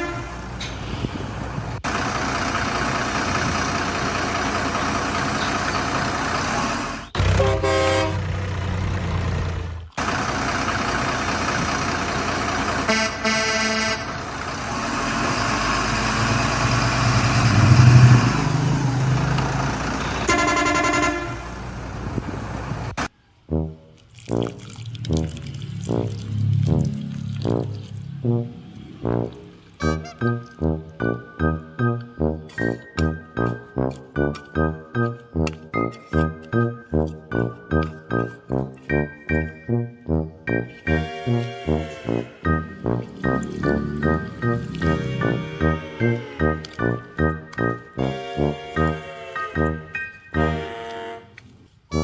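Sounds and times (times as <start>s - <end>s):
truck horn blasts: 0.0s - 0.8s, 7.2s - 8.5s, 12.8s - 14.4s, 20.0s - 21.6s, 29.0s - 34.4s, 40.5s - 52.0s
miniature truck engine rumble: 0.0s - 23.0s, 40.6s - 50.7s
music: 23.5s - 51.3s.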